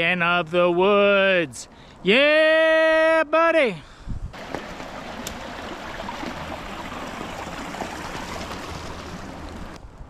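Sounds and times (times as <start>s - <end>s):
stream water rushing: 4.4s - 9.8s.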